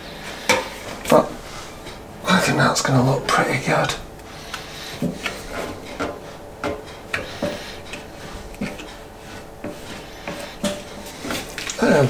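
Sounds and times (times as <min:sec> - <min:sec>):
squeegee rubbing wet decal: 0:07.1 - 0:12.0.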